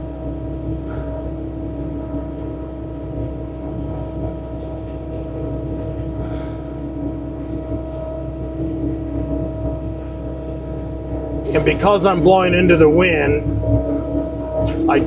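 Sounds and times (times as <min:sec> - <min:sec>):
diesel engine droning: 0:04.4 - 0:15.0.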